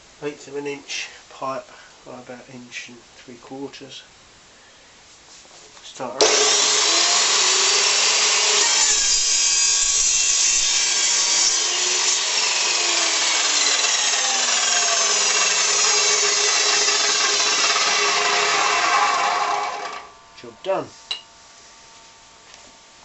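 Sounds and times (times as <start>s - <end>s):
chop saw cutting pipe: 6.2s - 20.1s.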